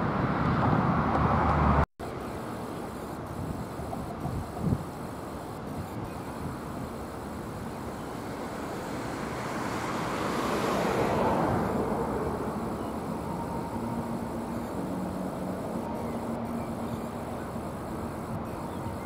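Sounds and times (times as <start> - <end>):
road vehicle passing by: 0.0 - 1.8, 8.1 - 18.4.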